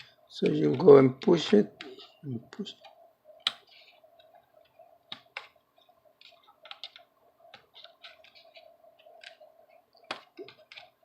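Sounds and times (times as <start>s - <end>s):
faint steady hum: 0.0s - 11.0s
small laptop parts clicking: 6.2s - 11.0s.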